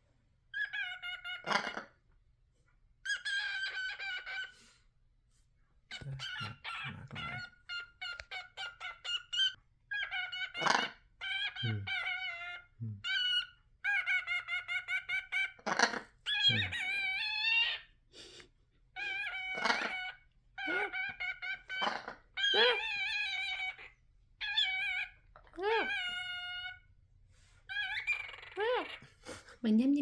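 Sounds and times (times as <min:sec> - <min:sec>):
pet bird calling: 0:00.6 - 0:01.8, 0:03.1 - 0:04.5, 0:05.9 - 0:17.9, 0:19.0 - 0:26.8, 0:27.7 - 0:29.1.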